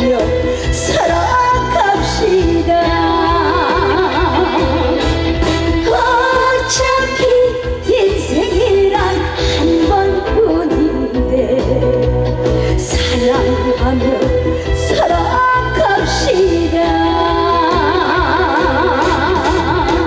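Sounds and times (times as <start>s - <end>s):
band playing a steady beat: 0.0s - 20.0s
woman singing with vibrato: 0.0s - 20.0s.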